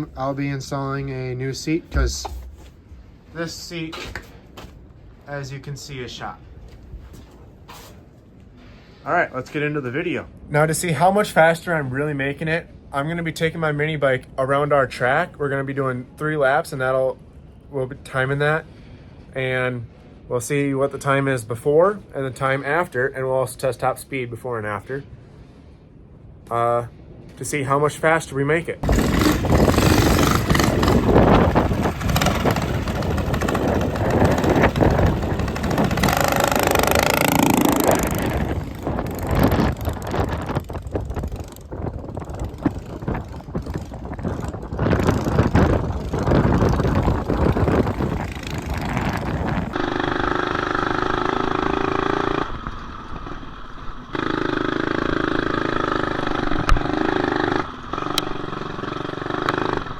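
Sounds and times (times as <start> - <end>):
wind rushing: 28.8 - 54.1
mini bike engine: 28.8 - 59.9.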